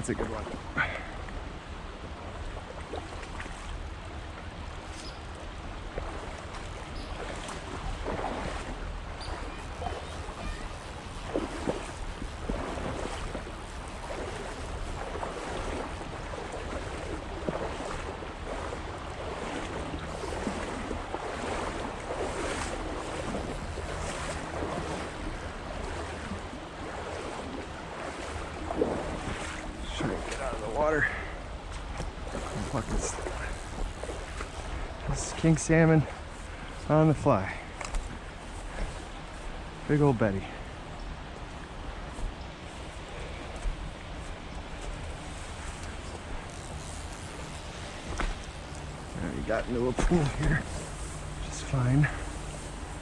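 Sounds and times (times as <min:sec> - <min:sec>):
river water rushing: 0:00.0 - 0:53.0
small splashes: 0:02.2 - 0:39.5
wind buffeting microphone: 0:05.8 - 0:35.6.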